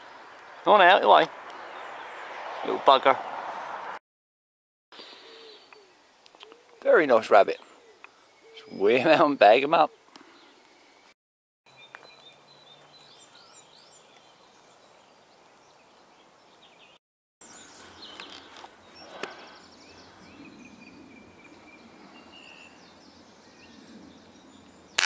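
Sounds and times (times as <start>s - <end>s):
short sweeping bird calls: 5.0s - 6.8s
birds chirping and singing: 5.0s - 11.1s, 11.7s - 25.0s.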